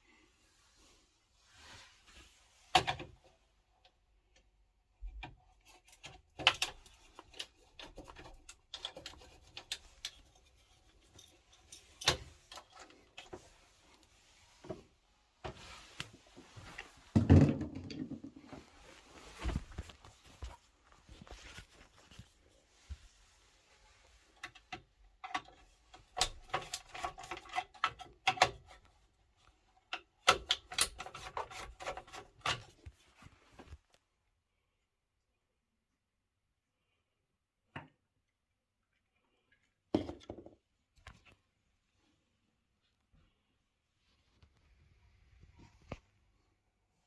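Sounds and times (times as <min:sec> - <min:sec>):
hands and tools clicking on parts: 0:05.1 - 0:13.5, 0:24.3 - 0:28.9, 0:29.7 - 0:32.8.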